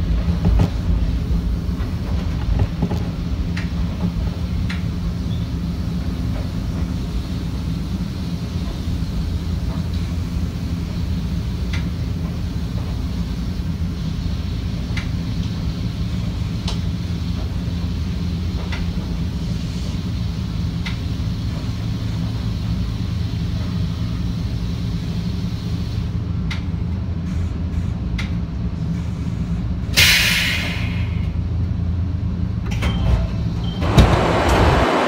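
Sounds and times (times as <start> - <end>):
electric train rumble and hum: 0.0 - 35.0
compressed air hiss: 19.1 - 26.2, 28.9 - 31.4.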